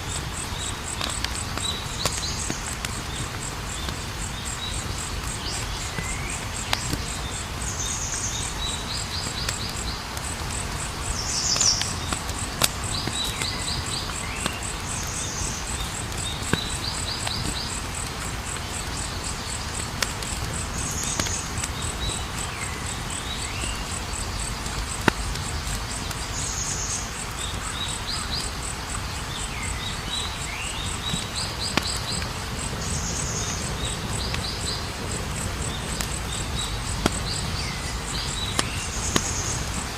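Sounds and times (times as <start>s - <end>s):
campfire crackling: 0.0s - 39.9s
cricket trilling: 0.0s - 39.9s.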